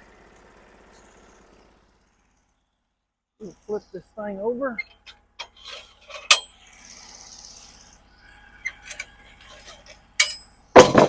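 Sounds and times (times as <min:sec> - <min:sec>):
heavy wooden thump: 0:10.8 - 0:11.0
wooden slab knocking and clanking: 0:10.8 - 0:11.0.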